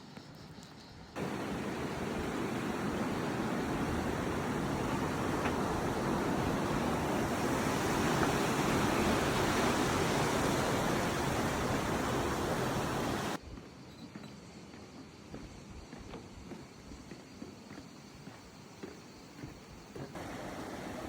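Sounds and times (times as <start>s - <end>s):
fast-flowing water rushing: 1.2s - 13.4s, 20.2s - 21.0s.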